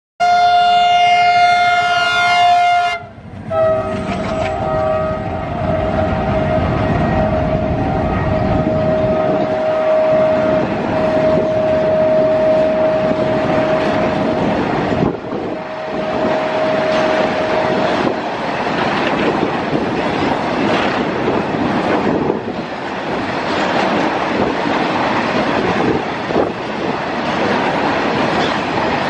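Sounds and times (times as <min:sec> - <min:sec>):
locomotive horn blasts: 0:00.2 - 0:18.2
train wagons rumbling and clattering: 0:00.3 - 0:29.0.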